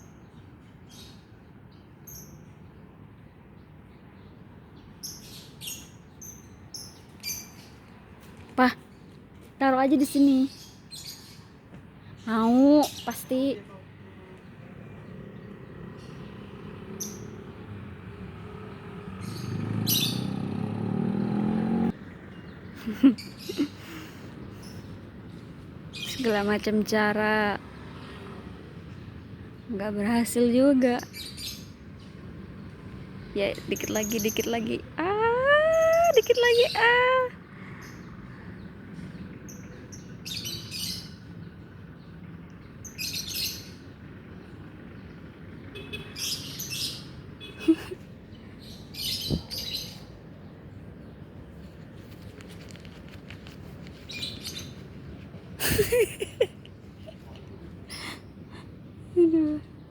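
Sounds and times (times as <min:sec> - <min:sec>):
bird chirping: 0:14.4 - 0:23.7, 0:37.8 - 0:51.7.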